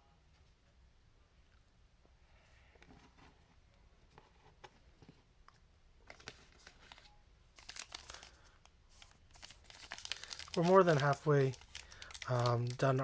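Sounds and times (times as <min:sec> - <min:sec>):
wrapper crinkling: 0:06.1 - 0:13.0
cards clicking and rustling: 0:09.0 - 0:13.0.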